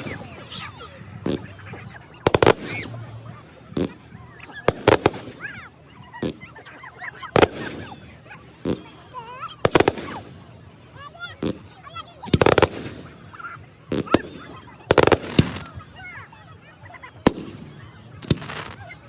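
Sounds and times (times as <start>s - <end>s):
firework squeals: 0.0s - 3.2s, 13.9s - 15.8s.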